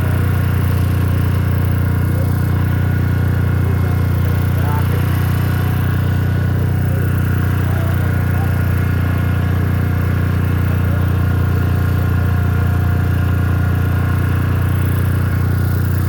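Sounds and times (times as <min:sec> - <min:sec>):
core drill low drone: 0:00.0 - 0:16.0.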